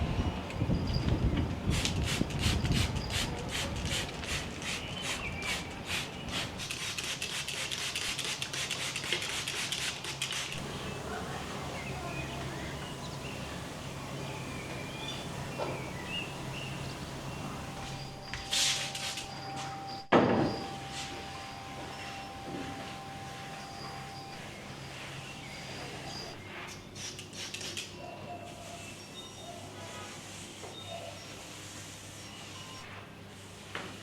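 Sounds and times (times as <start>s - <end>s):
rhythmic rubbing strokes: 1.7s - 27.3s
low steady hum: 10.5s - 26.4s.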